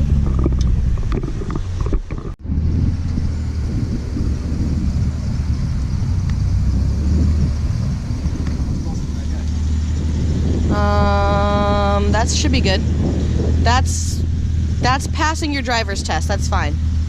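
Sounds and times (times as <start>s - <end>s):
car engine rumble: 0.0s - 17.0s
road noise inside car: 0.0s - 17.0s.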